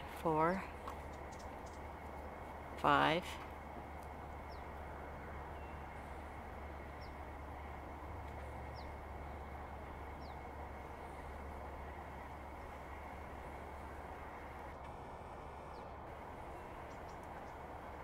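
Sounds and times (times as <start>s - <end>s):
steady low rumble: 0.0s - 18.0s
small bird chirping: 1.1s - 1.9s.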